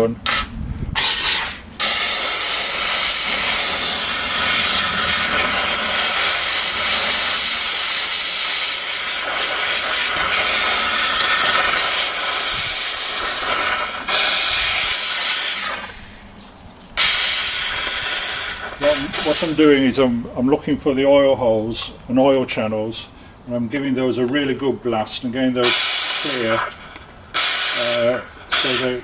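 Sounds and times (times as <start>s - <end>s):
steam cleaner jet hissing: 0.0s - 16.3s, 17.0s - 19.9s, 25.6s - 29.0s.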